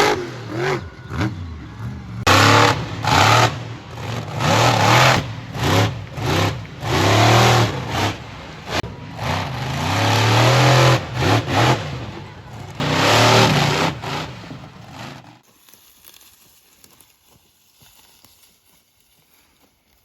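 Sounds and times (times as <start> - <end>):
monster truck engines revving: 0.0 - 15.4.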